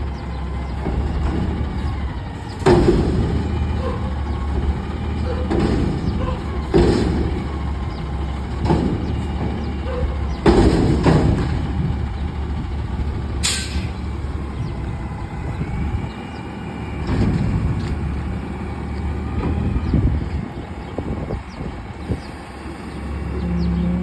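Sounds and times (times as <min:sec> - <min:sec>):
garbage truck running: 0:00.0 - 0:24.0
loud metal clanks: 0:00.7 - 0:12.0, 0:13.4 - 0:14.0.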